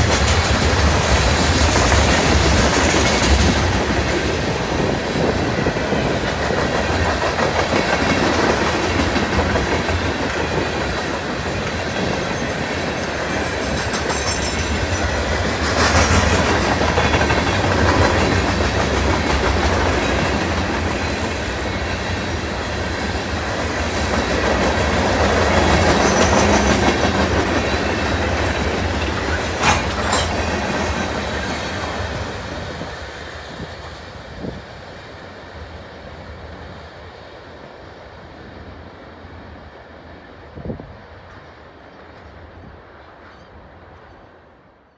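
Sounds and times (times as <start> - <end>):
train wheels clattering over rails: 0.0 - 34.0.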